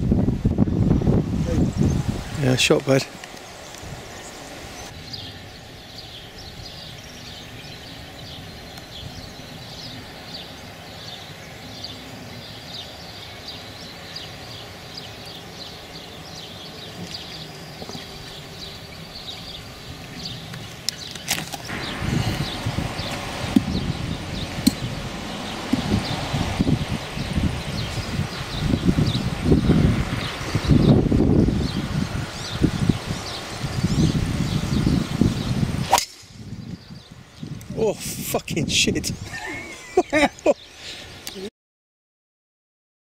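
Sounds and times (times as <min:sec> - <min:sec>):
rustling wind-like rush: 0:00.0 - 0:41.5
small birds chirping: 0:00.6 - 0:41.5
golf driver striking ball: 0:24.6 - 0:24.9, 0:35.8 - 0:36.3.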